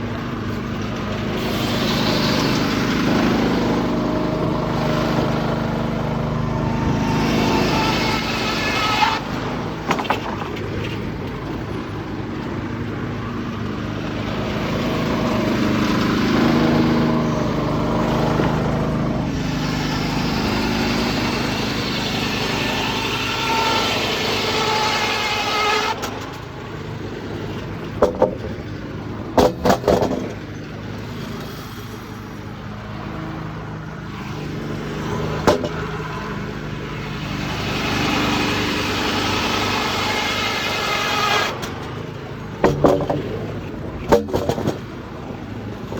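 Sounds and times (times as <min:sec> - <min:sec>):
muffled diesel engine under load: 0:00.0 - 0:45.9
sharp wooden clatters: 0:07.2 - 0:11.6, 0:27.9 - 0:28.8, 0:29.4 - 0:30.4, 0:35.4 - 0:35.9, 0:39.2 - 0:45.0.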